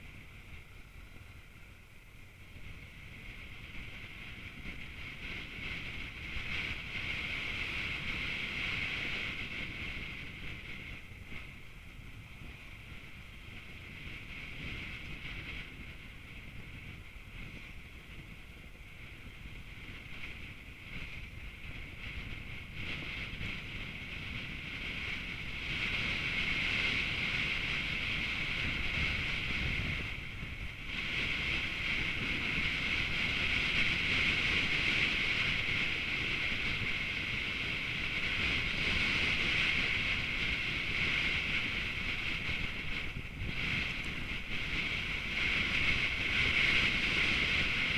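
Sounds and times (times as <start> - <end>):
wind and road noise: 0.0 - 47.9.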